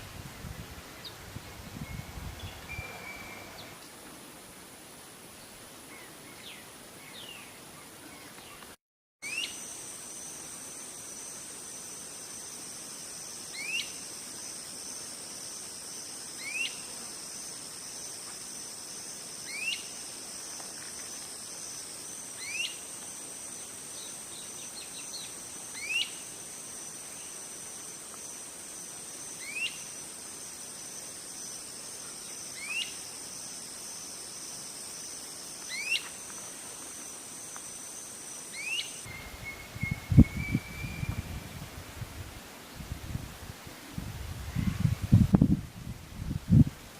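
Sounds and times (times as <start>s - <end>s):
insects droning: 0.0s - 8.6s, 9.2s - 46.9s
bird rising call: 2.4s - 3.8s.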